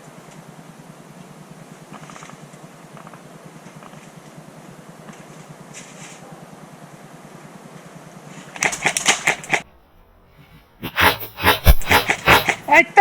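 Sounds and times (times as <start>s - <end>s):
airsoft gun full-auto burst: 8.6s - 9.6s.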